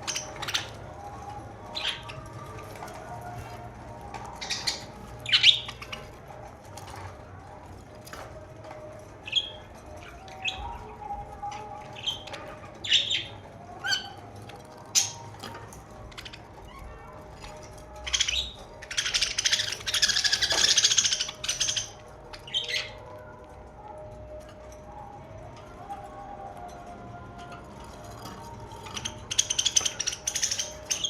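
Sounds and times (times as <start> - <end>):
budgerigars chirping: 0.0 - 3.5, 4.1 - 6.2, 12.0 - 14.2, 14.9 - 23.0, 28.8 - 31.0
budgerigars warbling chatter: 0.0 - 7.1, 11.6 - 14.3, 14.9 - 23.0, 28.7 - 31.0.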